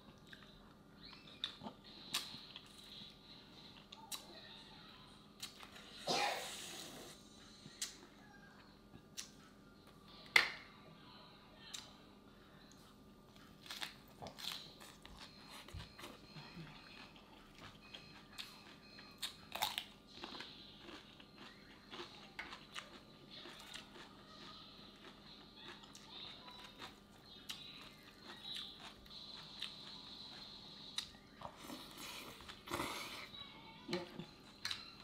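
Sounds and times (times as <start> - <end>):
person chewing crunchy salad: 13.6 - 33.2.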